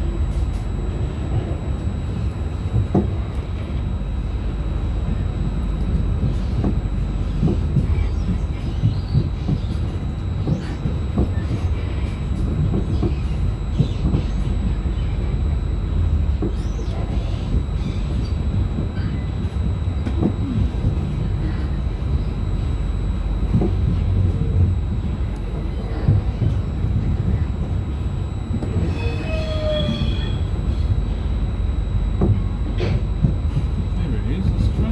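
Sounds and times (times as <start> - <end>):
train low rumble: 0.0 - 34.9
faint wheel squeal: 28.8 - 30.9.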